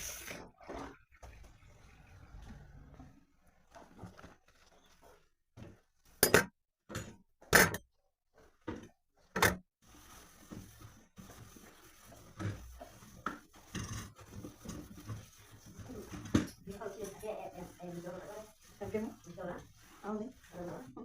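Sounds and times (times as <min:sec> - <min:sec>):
clattering and handling noises: 0:02.4 - 0:09.6.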